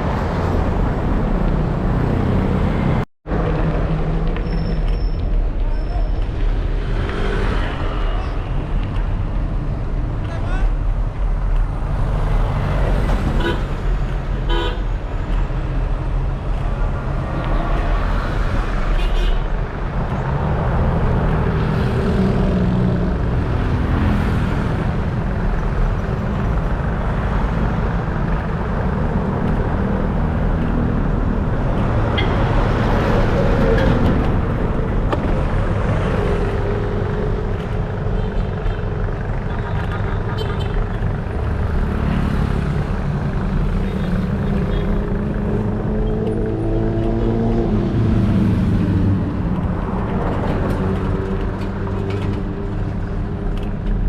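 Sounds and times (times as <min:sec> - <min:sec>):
road traffic passing: 0:00.0 - 0:54.0
vehicle horns tooting: 0:14.4 - 0:14.9.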